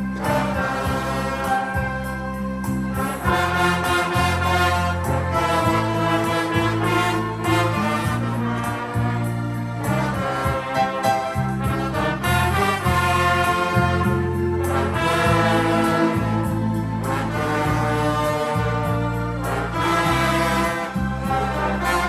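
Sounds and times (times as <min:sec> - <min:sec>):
brass band playing: 0:00.0 - 0:22.0.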